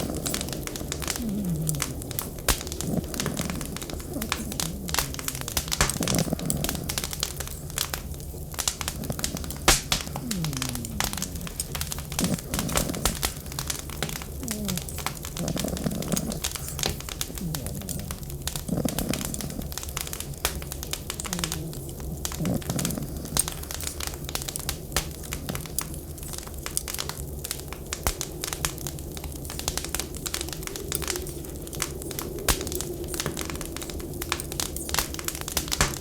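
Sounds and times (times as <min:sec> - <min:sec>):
wind whistling: 0:00.0 - 0:22.2
wood fire crackling: 0:00.0 - 0:36.0.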